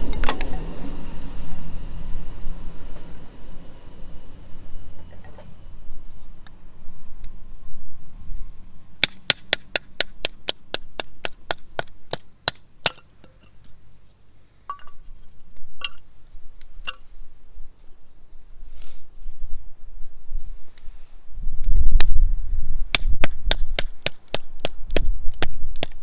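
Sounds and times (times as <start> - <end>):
sharp chopping taps: 9.0 - 13.0.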